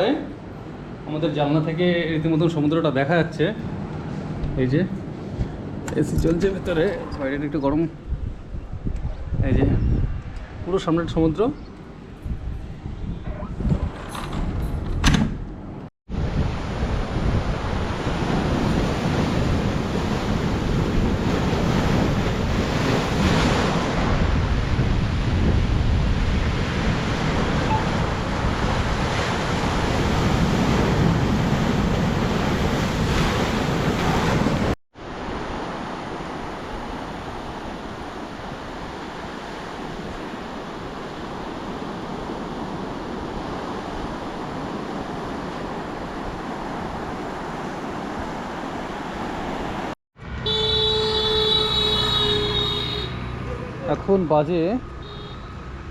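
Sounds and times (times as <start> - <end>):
wind buffeting the microphone: 5.3 - 15.1, 16.1 - 34.8
waves breaking on a beach: 16.1 - 50.0.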